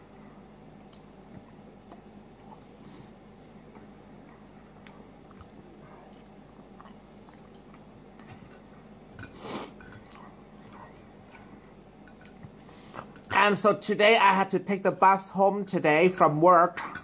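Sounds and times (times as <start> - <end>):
person chewing food: 0.0 - 13.4
steady low hum: 0.0 - 17.0.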